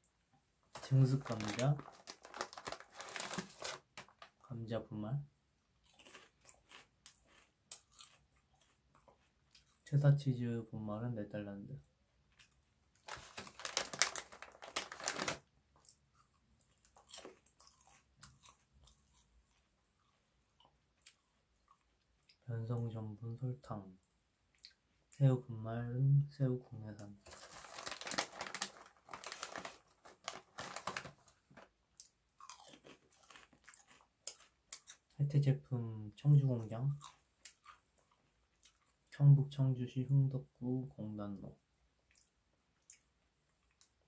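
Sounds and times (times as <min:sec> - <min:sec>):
crunching crisp chips: 0:00.8 - 0:04.2, 0:05.8 - 0:09.7, 0:12.3 - 0:19.6, 0:27.2 - 0:31.4, 0:32.0 - 0:35.2
soft chewing: 0:05.8 - 0:09.9, 0:12.3 - 0:13.1, 0:15.7 - 0:22.4, 0:23.9 - 0:25.2, 0:28.6 - 0:35.2, 0:36.6 - 0:39.2, 0:42.0 - 0:44.0.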